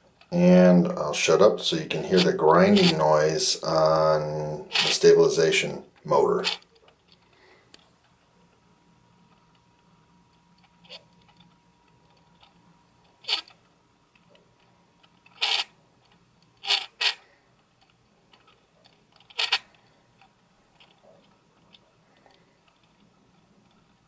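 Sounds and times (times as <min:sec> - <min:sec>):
lens stabilizer motor grinding: 0:10.6 - 0:14.4, 0:15.0 - 0:24.0.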